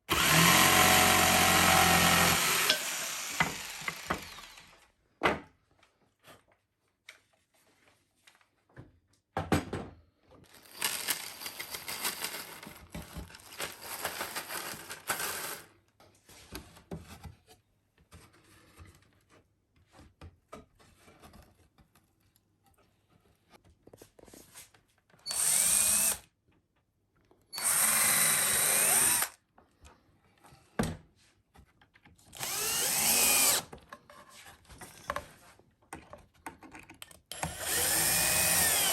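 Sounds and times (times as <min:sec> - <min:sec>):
electric drill whining: 0:00.1 - 0:04.8, 0:25.3 - 0:26.2, 0:27.6 - 0:29.4, 0:32.4 - 0:33.7, 0:37.3 - 0:38.9
scraping and handling noise: 0:10.4 - 0:25.2, 0:33.8 - 0:37.2.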